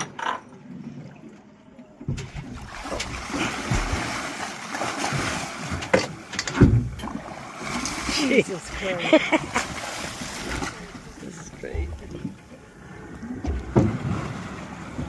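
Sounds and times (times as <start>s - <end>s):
heavy thumps: 2.1s - 4.2s, 10.3s - 12.6s
fish thrashing in water: 2.2s - 15.0s.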